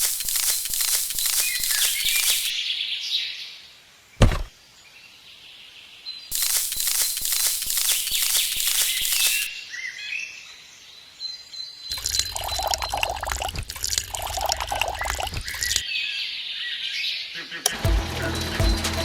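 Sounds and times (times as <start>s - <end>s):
water pouring and splashing: 11.9s - 15.8s.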